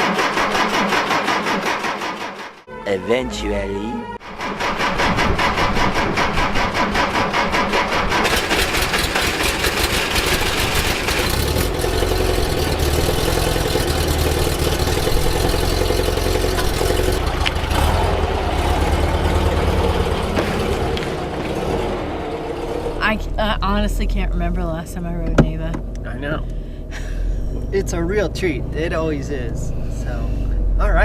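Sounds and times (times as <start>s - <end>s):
car engine running: 4.2s - 31.0s.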